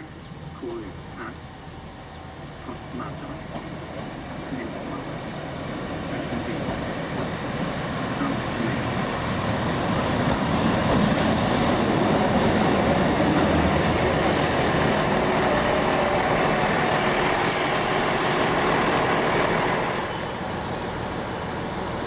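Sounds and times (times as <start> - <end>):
diesel train rumbling: 0.0 - 22.0
high hisses: 11.0 - 20.4.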